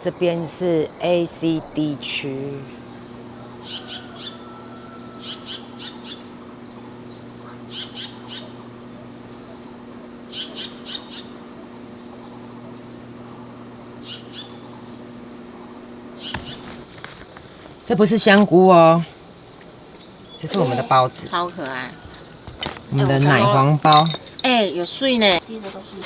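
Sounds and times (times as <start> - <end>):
bird calling high notes: 0.0 - 16.8
steady low hum: 0.0 - 26.0.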